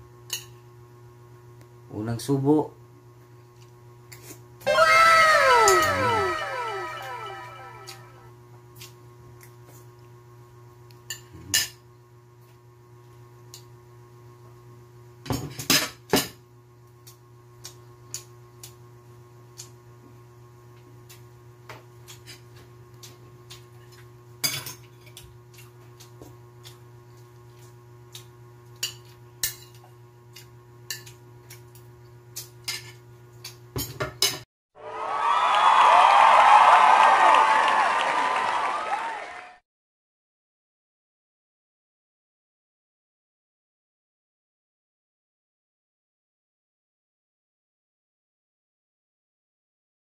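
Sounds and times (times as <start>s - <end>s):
cutlery clinking on a ceramic plate: 28.8s - 31.2s.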